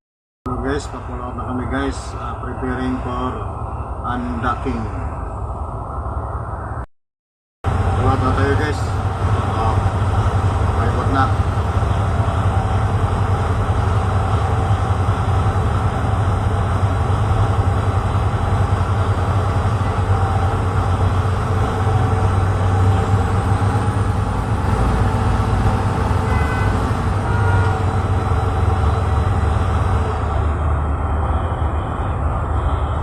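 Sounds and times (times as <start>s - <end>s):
boat diesel engine droning: 0.5s - 6.8s, 7.6s - 33.0s.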